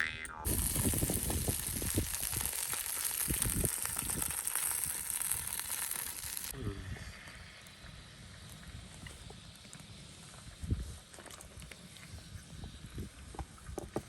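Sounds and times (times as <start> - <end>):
food sizzling in a pan: 0.4 - 6.6.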